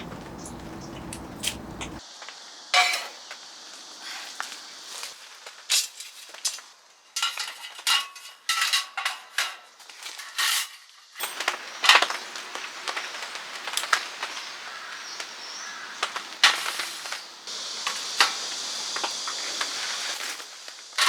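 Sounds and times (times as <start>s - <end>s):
dishes and utensils clattering: 0.0s - 2.0s, 2.8s - 3.2s, 7.2s - 12.4s.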